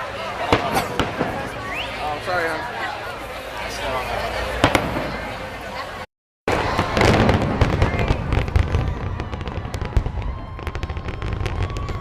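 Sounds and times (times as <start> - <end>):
fireworks booming and crackling: 0.2 - 2.3, 4.5 - 5.8, 6.5 - 12.0.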